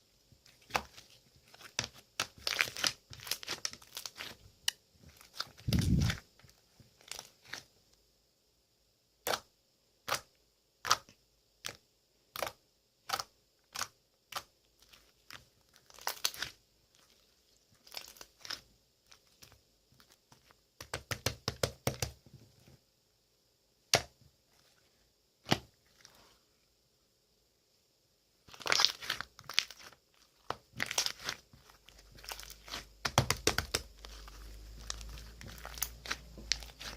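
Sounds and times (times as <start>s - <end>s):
slime crackling: 0.4s - 7.7s, 9.2s - 21.4s, 28.4s - 36.9s.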